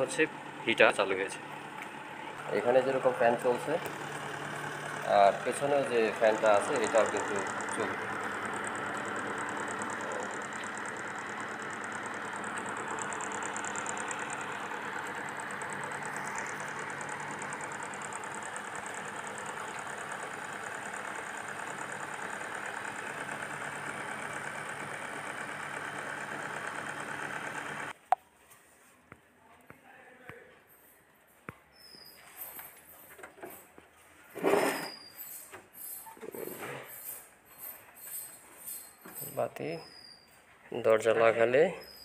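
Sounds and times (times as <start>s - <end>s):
microwave oven humming: 0.0s - 28.0s.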